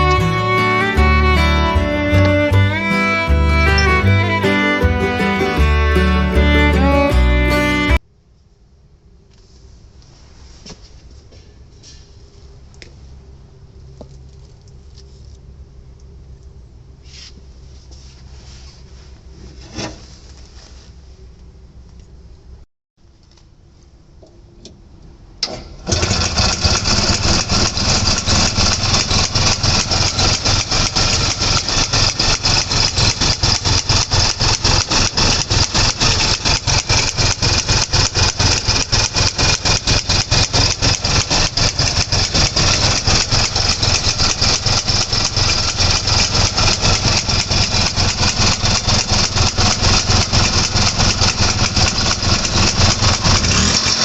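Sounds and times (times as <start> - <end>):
two-stroke engine running: 0.0 - 8.0, 25.8 - 54.0.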